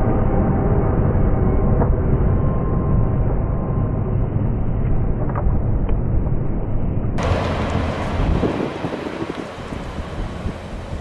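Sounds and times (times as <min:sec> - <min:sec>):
freight train rumbling past: 0:07.2 - 0:11.0.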